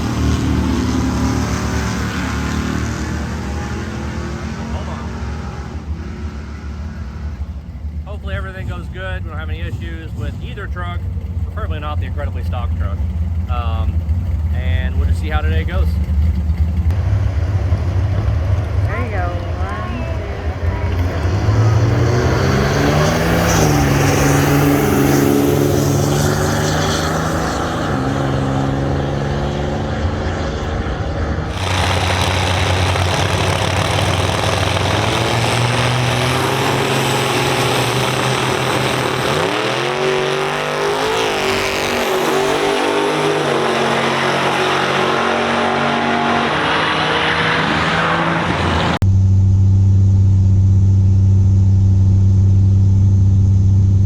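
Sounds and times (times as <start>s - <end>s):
truck engine accelerating and shifting: 0.0s - 54.0s
steady low engine drone: 27.2s - 40.5s, 48.5s - 54.0s.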